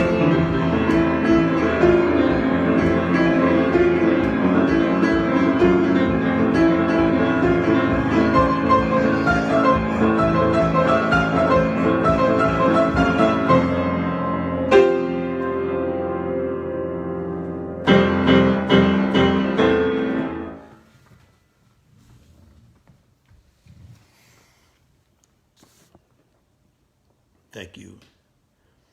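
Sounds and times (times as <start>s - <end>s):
solo piano improvisation: 0.0s - 21.0s.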